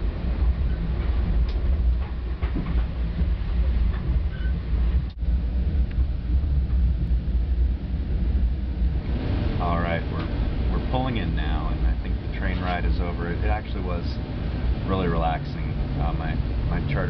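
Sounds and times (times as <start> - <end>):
faint clicks and rattles: 0.0 - 8.6, 10.0 - 14.2
train rumble from inside car: 0.0 - 17.0.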